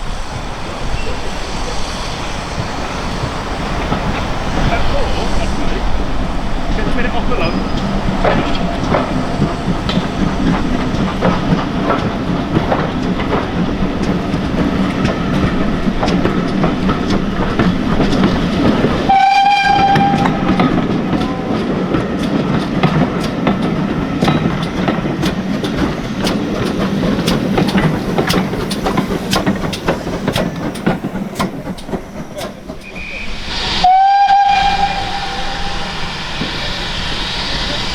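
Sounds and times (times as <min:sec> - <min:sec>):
train rumble: 0:00.0 - 0:37.9
train wheels clicking on rails: 0:00.0 - 0:37.9
train whistle blast: 0:19.0 - 0:21.6, 0:32.8 - 0:37.9.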